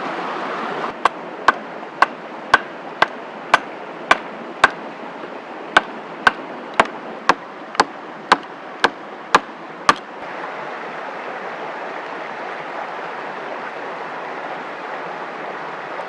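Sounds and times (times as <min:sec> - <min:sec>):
axe chopping wood: 0:01.0 - 0:04.8, 0:05.8 - 0:10.1.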